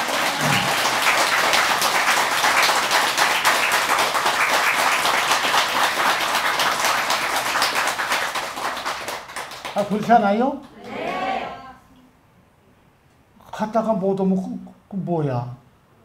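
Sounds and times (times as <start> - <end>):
audience applause: 0.0 - 10.0.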